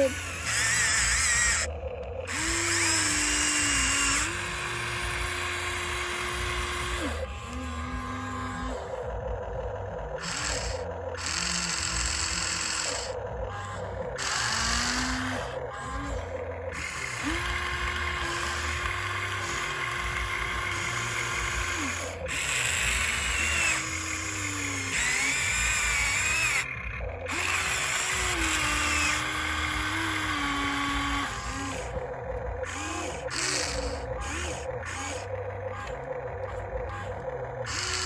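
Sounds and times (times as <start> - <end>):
toy electric motors whining: 0.0 - 38.0.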